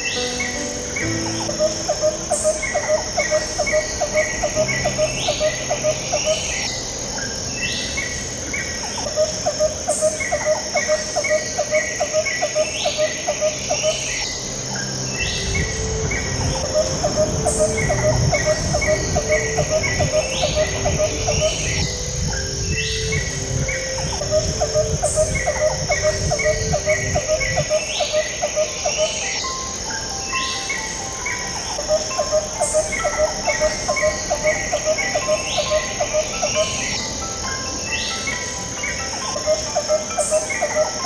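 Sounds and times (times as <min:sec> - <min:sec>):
bird chirps: 0:00.0 - 0:41.0
soft background music: 0:00.0 - 0:41.0.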